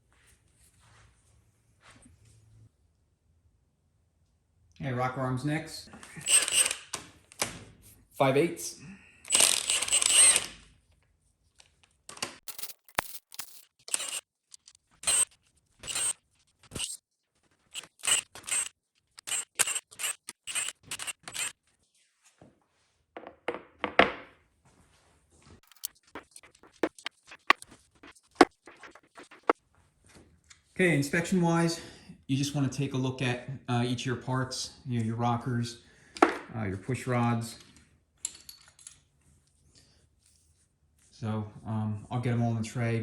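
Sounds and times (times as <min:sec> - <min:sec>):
socket ratchet clicking: 0:06.2 - 0:07.0, 0:09.3 - 0:10.5, 0:12.5 - 0:14.2, 0:17.8 - 0:21.5
clatter of parts handled: 0:09.3 - 0:10.6, 0:11.5 - 0:17.0, 0:25.6 - 0:29.6, 0:38.2 - 0:39.1.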